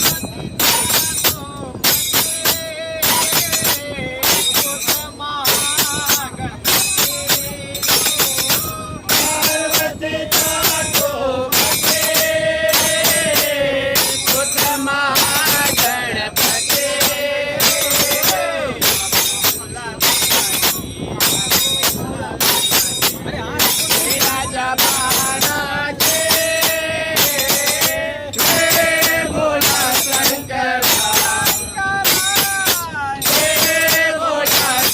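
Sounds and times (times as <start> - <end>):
group singing devotional song: 0.0 - 20.7, 21.8 - 34.9
jingling metal percussion: 0.0 - 34.9.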